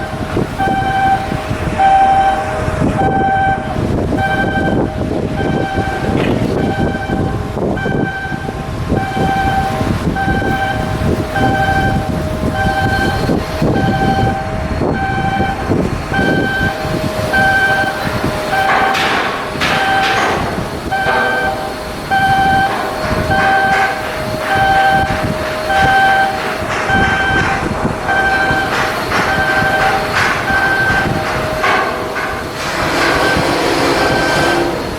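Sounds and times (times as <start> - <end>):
electronic warning beeper: 0.0 - 32.2
heavy shipyard work noise: 0.0 - 34.9
metal clatter: 16.7 - 34.9.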